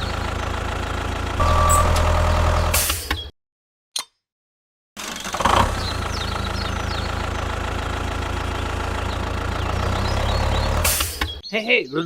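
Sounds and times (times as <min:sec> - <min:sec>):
engine idling: 0:00.0 - 0:02.8, 0:05.0 - 0:11.4
birds chirping: 0:05.7 - 0:12.0.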